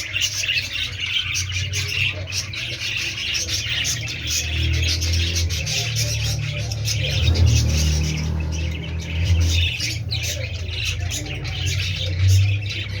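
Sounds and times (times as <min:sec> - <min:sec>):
canaries chirping: 0:00.0 - 0:13.0.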